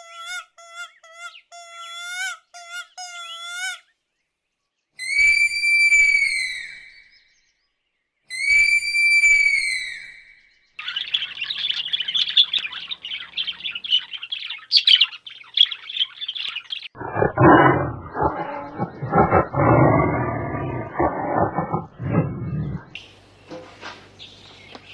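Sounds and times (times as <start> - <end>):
long whistled call: 5.0 - 7.2, 8.3 - 10.4
flock of birds chirping: 10.4 - 24.9
low rough animal call: 17.0 - 23.0.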